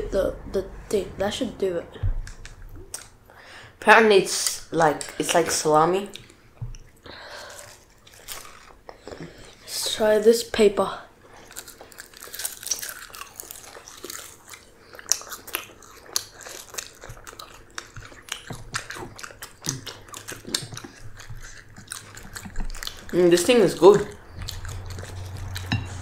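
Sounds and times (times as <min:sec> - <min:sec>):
chewing crisp seaweed: 0:06.0 - 0:09.6, 0:11.2 - 0:26.0.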